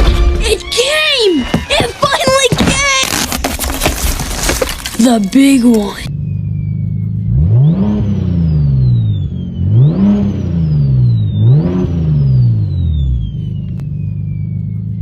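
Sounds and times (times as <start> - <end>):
car engine revving: 6.0 - 15.0.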